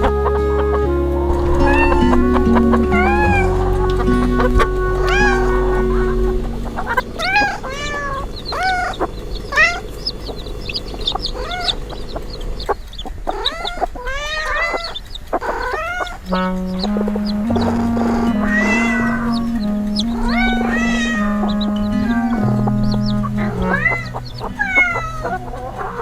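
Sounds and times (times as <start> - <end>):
background music: 0.0 - 7.8, 16.2 - 26.0
chickens clucking: 0.0 - 26.0.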